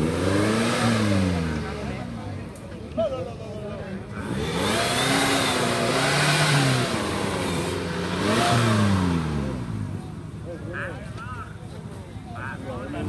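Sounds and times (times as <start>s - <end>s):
off-road engine revving: 0.0s - 2.6s, 4.0s - 10.9s.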